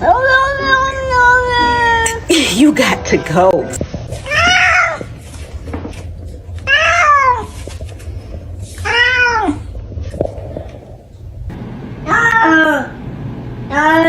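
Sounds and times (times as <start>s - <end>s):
cat meowing: 4.2s - 5.1s, 6.7s - 7.6s, 8.8s - 9.7s.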